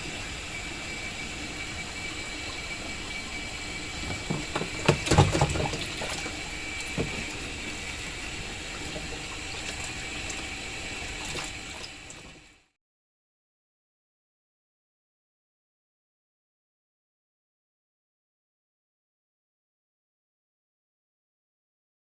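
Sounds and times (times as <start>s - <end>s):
water running: 0.0s - 12.7s
knocks and clunks: 4.0s - 6.2s, 6.8s - 7.4s.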